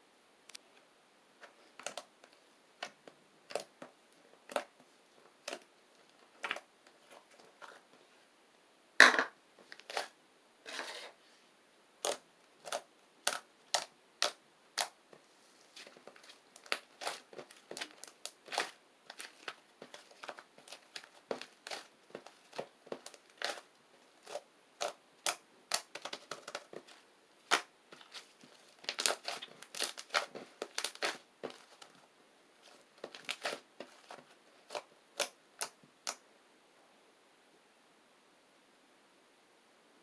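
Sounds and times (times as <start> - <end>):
slime popping and crackling: 2.8 - 3.8, 12.0 - 15.0, 15.7 - 32.0, 32.6 - 36.2.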